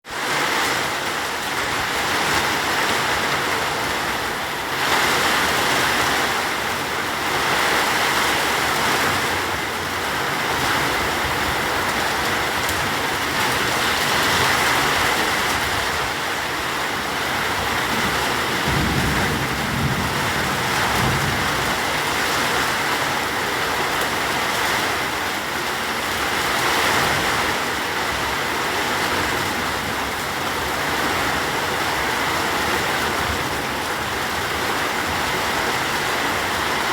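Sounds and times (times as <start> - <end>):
heavy rain hissing: 0.1 - 36.9.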